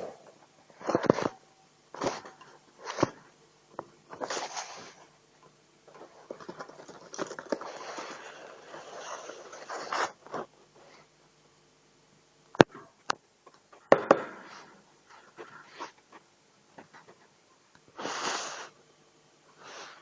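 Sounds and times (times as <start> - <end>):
parrot scratching and rustling: 4.1 - 5.1, 5.9 - 11.1.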